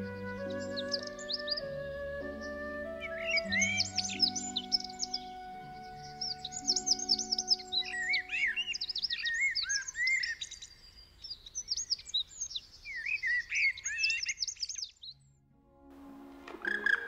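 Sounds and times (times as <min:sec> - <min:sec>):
held music notes: 0:00.0 - 0:08.8, 0:15.5 - 0:17.0
small birds singing and chirping: 0:00.0 - 0:15.4.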